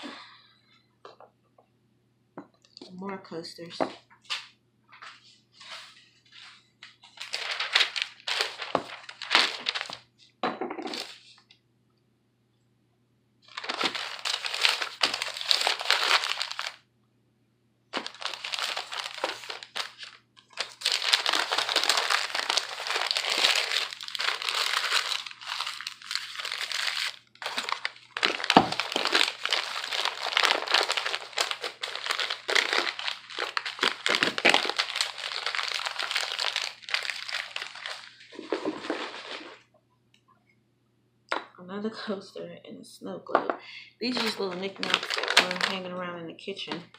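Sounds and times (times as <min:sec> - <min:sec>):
paper crumpling and rustling: 0:05.0 - 0:10.1, 0:10.9 - 0:11.4, 0:13.5 - 0:16.8, 0:18.0 - 0:39.7, 0:44.0 - 0:45.9.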